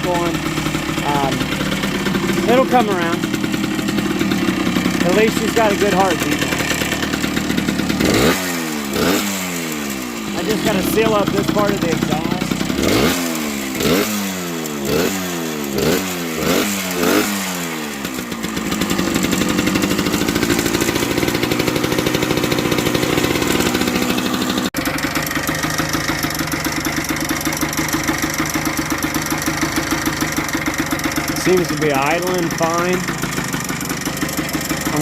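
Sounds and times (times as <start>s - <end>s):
two-stroke motorcycle engine revving: 0.0s - 35.0s.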